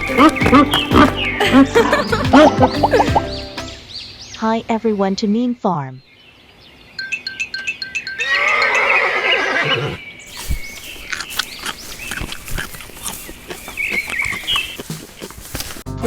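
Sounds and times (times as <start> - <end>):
horse whinnying: 8.2 - 10.0.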